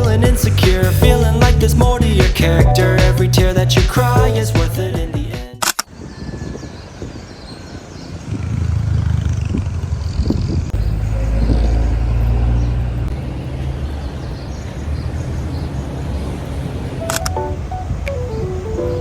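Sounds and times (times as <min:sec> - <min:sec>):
vehicle engine rumbling: 0:08.2 - 0:19.0.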